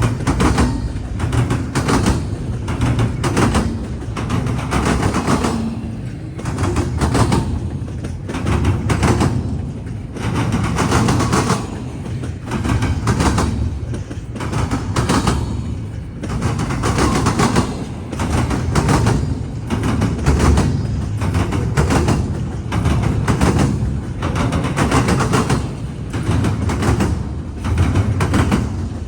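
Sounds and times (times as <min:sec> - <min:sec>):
rumble of rolling train cars: 0:00.0 - 0:29.0
train wheels clanking over crossing: 0:00.0 - 0:29.0.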